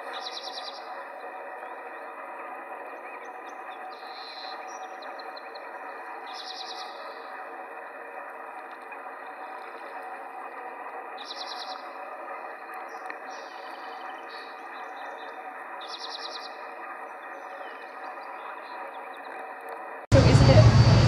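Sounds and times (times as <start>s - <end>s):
rapid high bird trill: 0.0s - 1.4s, 3.0s - 7.3s
small birds calling: 0.0s - 2.2s, 3.0s - 7.3s, 11.2s - 12.0s, 12.8s - 19.4s.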